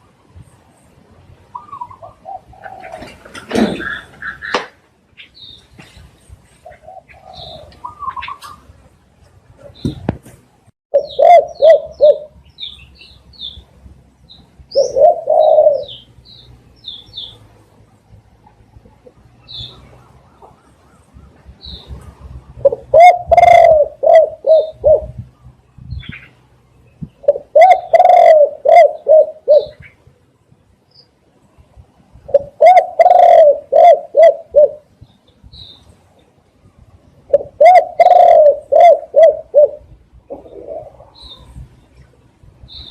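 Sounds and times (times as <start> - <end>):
dove cooing: 1.5 - 4.6, 6.6 - 8.6, 10.9 - 12.4, 14.7 - 16.1, 22.5 - 25.2, 27.1 - 29.9, 32.3 - 34.9, 37.3 - 41.5
small bird chirping: 5.2 - 8.6, 11.0 - 17.5.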